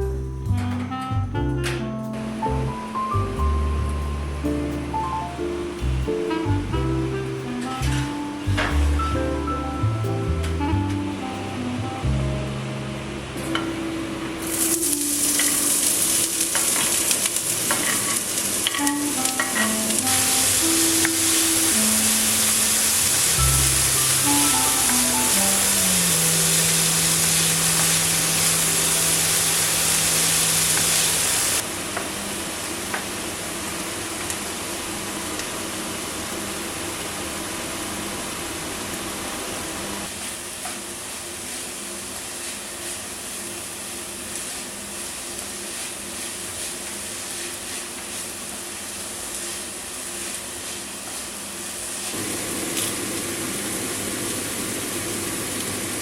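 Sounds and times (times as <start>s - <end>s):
steady hum: 0.0s - 31.6s
food sizzling in a pan: 2.2s - 56.0s.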